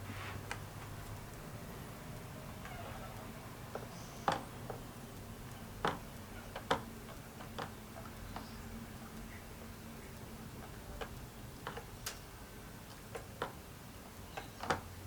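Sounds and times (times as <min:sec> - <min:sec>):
light clicks and taps: 0:02.1 - 0:13.6.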